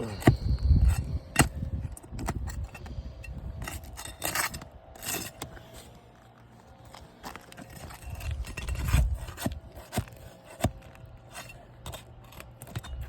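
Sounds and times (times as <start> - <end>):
flat bar scraping under shingles: 3.6 - 13.0.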